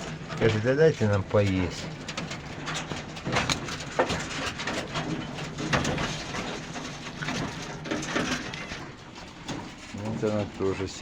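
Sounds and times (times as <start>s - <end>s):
nutrias feeding clicks and rustles: 0.0s - 11.0s.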